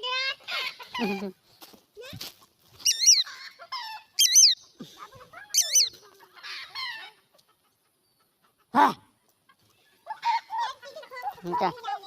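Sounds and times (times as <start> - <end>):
high-pitched quavering bird calls: 2.8 - 4.8, 5.5 - 6.0
softer lower bird calls: 4.2 - 4.8, 5.6 - 6.0.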